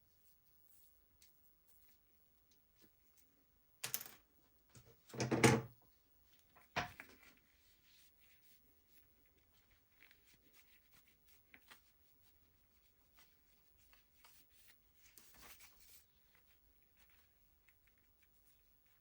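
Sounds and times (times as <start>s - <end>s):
faint clicks and rustles: 6.2s - 19.0s.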